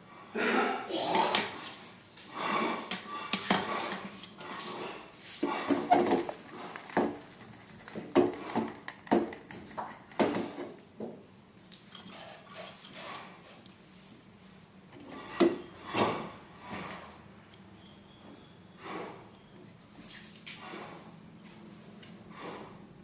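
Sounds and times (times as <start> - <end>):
scraping and rubbing: 3.6 - 10.8.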